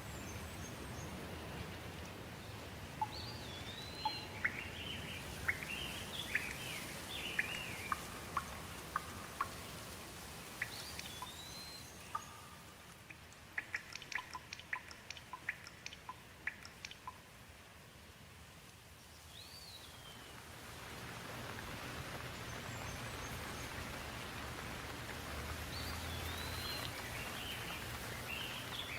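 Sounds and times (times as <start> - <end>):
birds chirping: 0.0 - 17.2, 25.7 - 28.9
sharp water drips: 0.0 - 17.8, 18.6 - 28.9
rain falling: 0.0 - 28.9.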